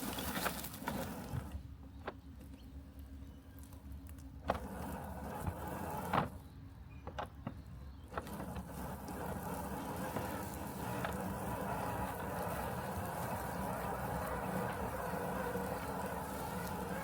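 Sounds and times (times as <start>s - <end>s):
robotic lawn mower humming: 0.0s - 1.8s, 4.4s - 6.6s, 8.0s - 17.0s
mower cutting hiss: 8.2s - 17.0s.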